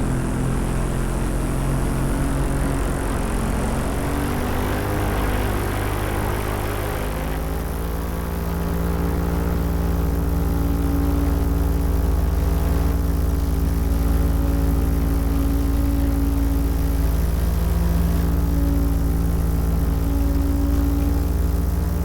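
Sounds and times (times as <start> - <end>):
paramotor engine and propeller: 0.0 - 22.0.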